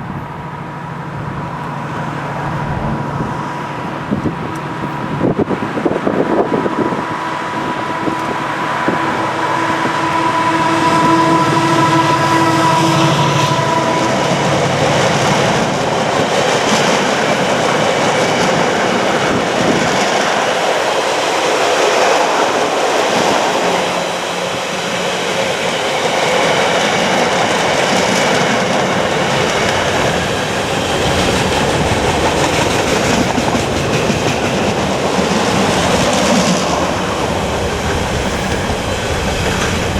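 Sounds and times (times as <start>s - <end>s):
locomotive engine hum: 0.0s - 39.9s
train wheels clattering on rails: 7.9s - 39.9s.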